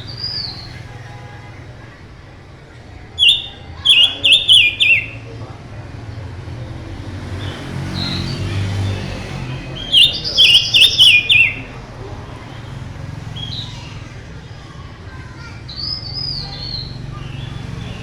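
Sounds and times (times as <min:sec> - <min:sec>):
bird chirps: 0:00.0 - 0:00.8, 0:03.1 - 0:05.4, 0:07.4 - 0:11.8, 0:15.7 - 0:18.0
songbird singing whistled phrase: 0:03.2 - 0:05.3, 0:09.7 - 0:11.7.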